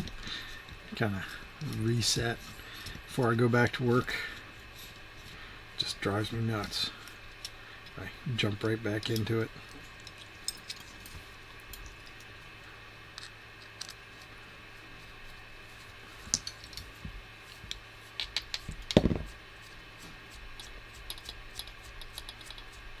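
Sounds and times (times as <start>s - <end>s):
hand tools clicking and tapping: 17.7s - 19.3s, 20.6s - 22.8s.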